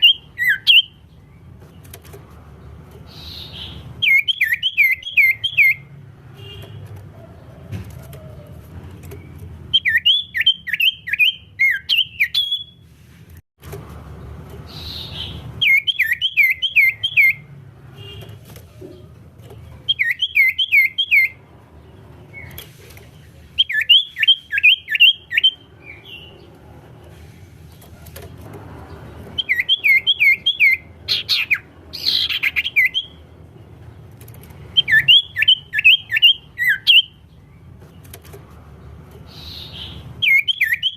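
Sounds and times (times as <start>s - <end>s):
bird singing whistled notes: 0.0s - 1.0s, 3.1s - 5.9s, 9.7s - 12.8s, 14.7s - 17.5s, 19.9s - 21.4s, 23.6s - 26.3s, 29.4s - 33.2s, 34.7s - 37.2s, 39.3s - 40.9s.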